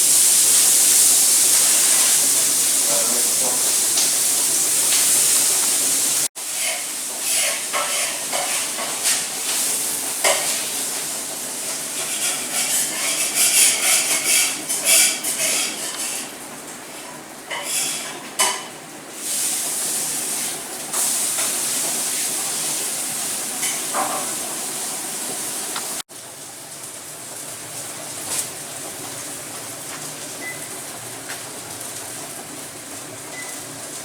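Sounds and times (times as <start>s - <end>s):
cooking hissing: 0.0s - 34.0s
pans and utensils clattering: 6.4s - 10.8s, 11.6s - 16.4s, 17.0s - 18.8s, 23.6s - 24.6s.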